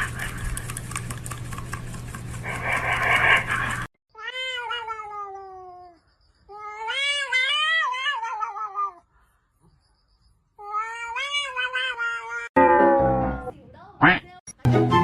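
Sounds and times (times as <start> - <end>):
cat meowing: 4.2 - 9.0, 10.6 - 12.5.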